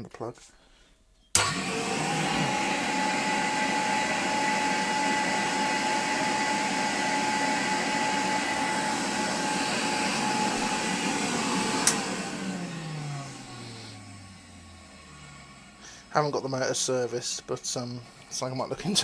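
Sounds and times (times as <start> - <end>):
vacuum cleaner motor whine: 1.4 - 19.0
switch click: 11.8 - 12.1.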